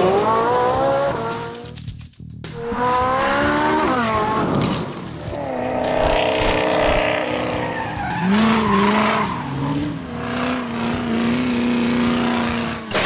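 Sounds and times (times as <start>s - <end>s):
race car engine sound effect: 0.0s - 1.7s.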